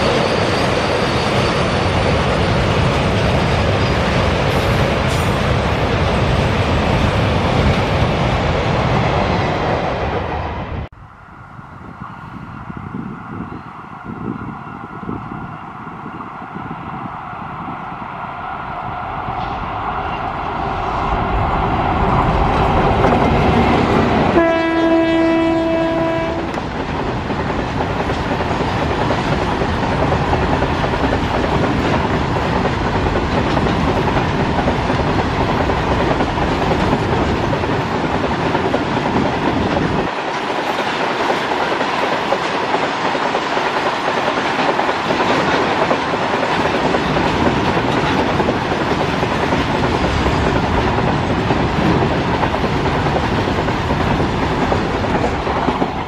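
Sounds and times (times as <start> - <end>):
electric locomotives passing: 0.0 - 56.0
locomotive air horn: 24.3 - 26.6.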